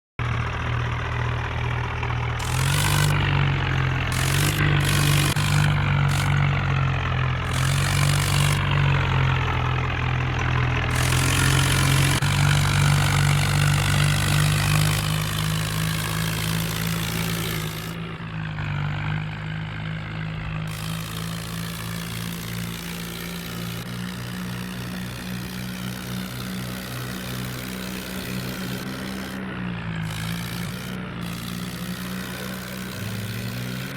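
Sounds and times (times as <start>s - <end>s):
tractor engine revving: 0.0s - 33.9s.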